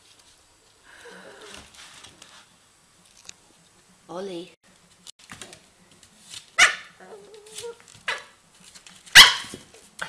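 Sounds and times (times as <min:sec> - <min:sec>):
dog barking: 0:06.6 - 0:07.0, 0:08.1 - 0:08.4, 0:09.1 - 0:09.6.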